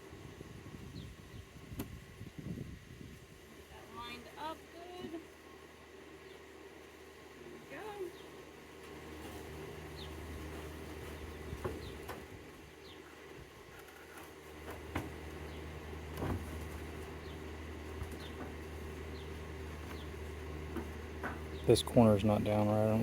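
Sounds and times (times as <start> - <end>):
honeybees humming: 0.0 - 23.0
wooden hive parts knocking: 11.1 - 12.3, 14.2 - 21.7.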